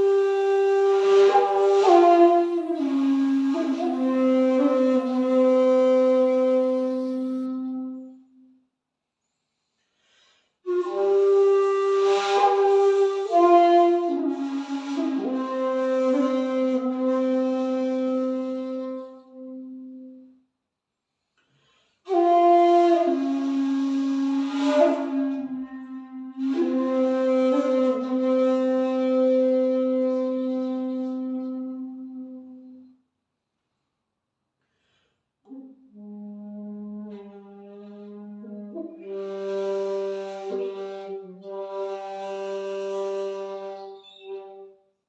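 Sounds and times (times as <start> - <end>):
bamboo flute: 0.0 - 8.6, 10.7 - 20.4, 21.7 - 33.0, 35.5 - 44.8.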